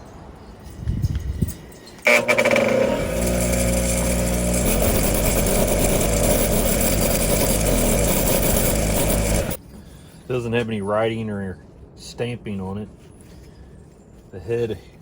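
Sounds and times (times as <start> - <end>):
motor running loudly: 2.1 - 9.6.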